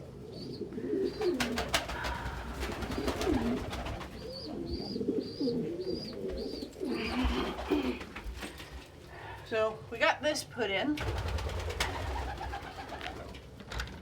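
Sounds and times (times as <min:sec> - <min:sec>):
pigeon cooing: 0:00.0 - 0:08.9.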